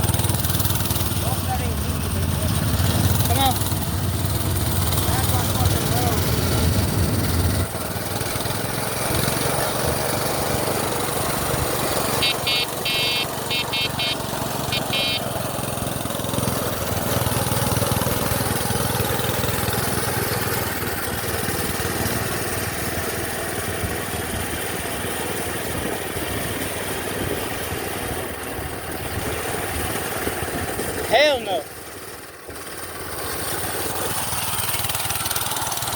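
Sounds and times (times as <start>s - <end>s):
minibike engine hum: 0.0s - 35.9s
short high beeps: 12.2s - 15.3s.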